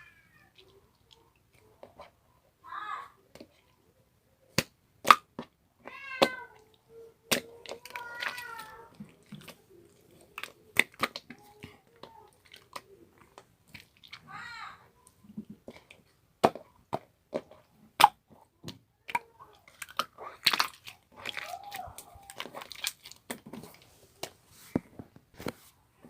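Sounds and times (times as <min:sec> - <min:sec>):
cat meowing: 0:05.9 - 0:06.7, 0:07.9 - 0:09.0.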